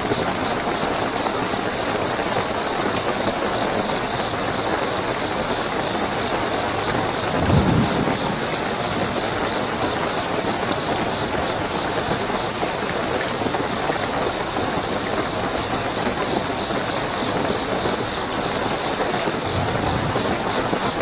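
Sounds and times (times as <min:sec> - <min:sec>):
crickets chirring: 0:00.0 - 0:21.0
heavy rainfall: 0:00.0 - 0:21.0
low rumble: 0:19.4 - 0:20.9.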